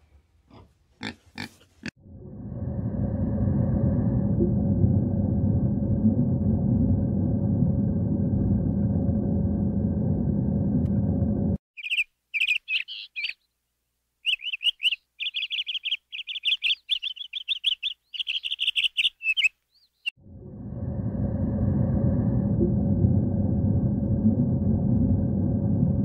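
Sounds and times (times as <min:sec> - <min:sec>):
low rumble: 0:02.0 - 0:11.6, 0:20.2 - 0:26.0
bird chirping: 0:11.8 - 0:13.6, 0:14.2 - 0:20.1.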